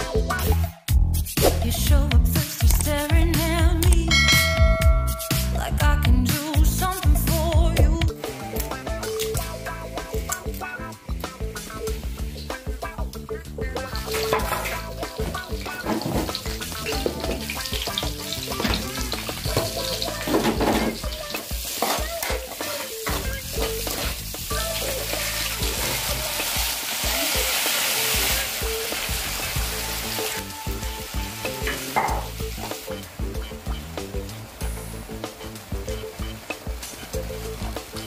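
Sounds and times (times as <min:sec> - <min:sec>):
food sizzling in hot oil: 0:08.2 - 0:38.0
metal ladle scraping wok: 0:14.0 - 0:17.4.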